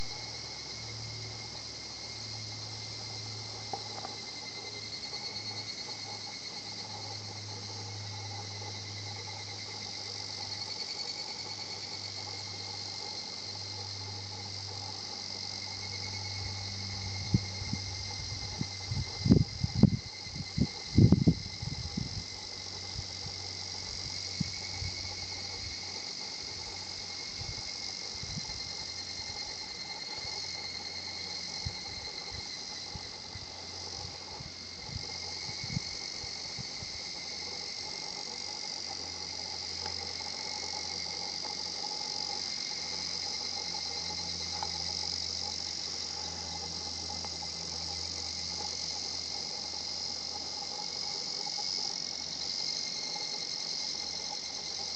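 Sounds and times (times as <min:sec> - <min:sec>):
cicadas singing: 0:00.0 - 0:54.9.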